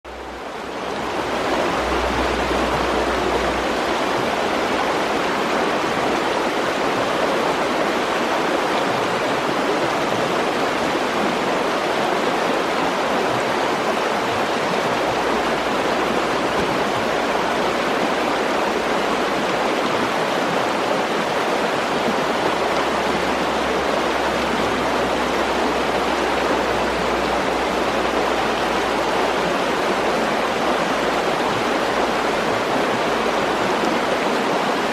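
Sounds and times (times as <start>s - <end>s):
stream flowing: 0.1s - 34.9s.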